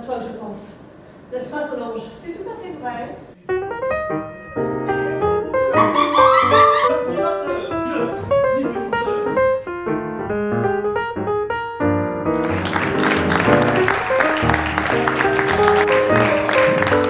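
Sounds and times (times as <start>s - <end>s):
piano music: 3.4s - 17.0s
applause: 12.4s - 17.0s.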